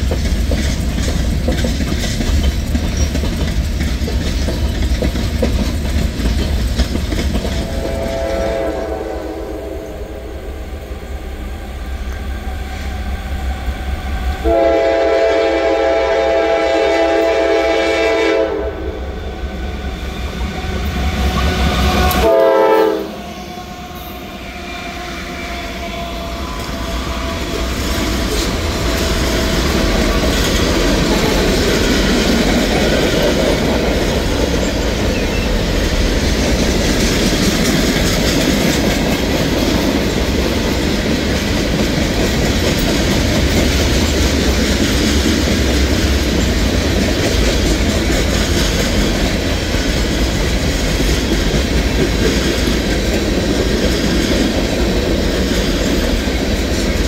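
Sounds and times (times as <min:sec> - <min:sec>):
wheel clickety-clack on rails: 0:00.0 - 0:08.8, 0:26.1 - 0:57.0
train rumble: 0:00.0 - 0:57.0
locomotive horn: 0:07.6 - 0:10.7, 0:14.4 - 0:19.2, 0:20.5 - 0:27.8.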